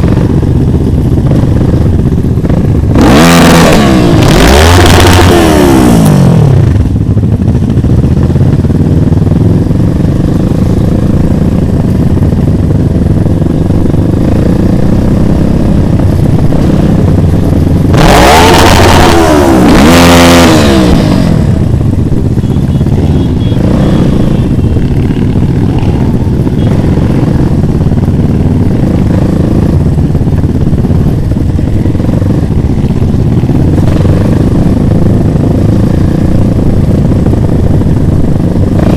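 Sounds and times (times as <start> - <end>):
motorcycle engines running: 0.0 - 38.9
motorcycle passing by: 18.0 - 21.6.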